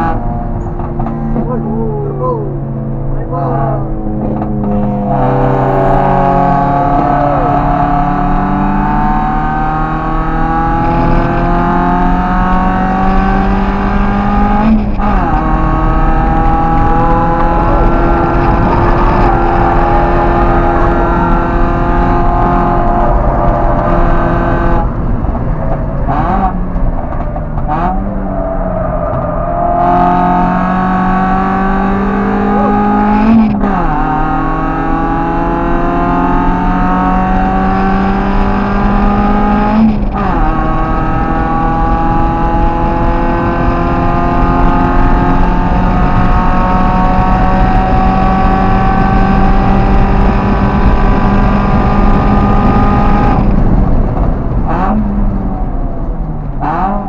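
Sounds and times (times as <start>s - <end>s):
car engine accelerating: 0.0s - 57.0s
engine rev blips: 2.5s - 24.8s.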